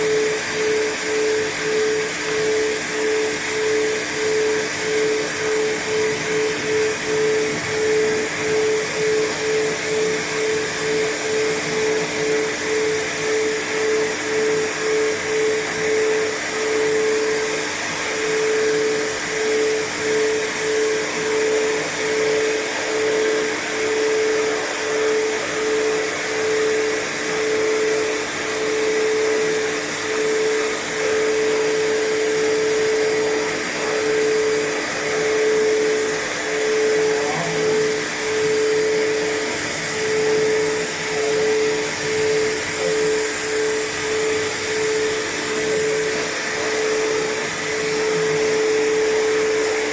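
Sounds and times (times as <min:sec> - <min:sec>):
blow dryer running: 0:00.0 - 0:49.9.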